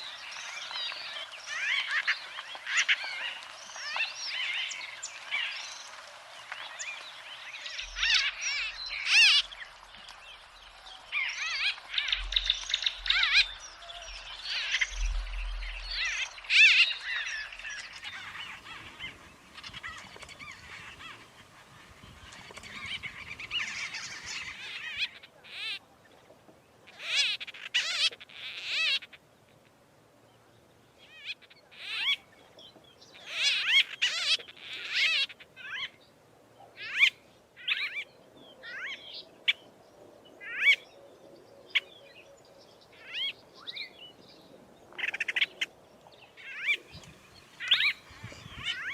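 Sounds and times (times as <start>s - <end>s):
short rolling bird calls: 11.0s - 25.8s, 46.4s - 48.9s
bee-eaters trilled calls: 11.2s - 25.8s, 46.4s - 48.9s.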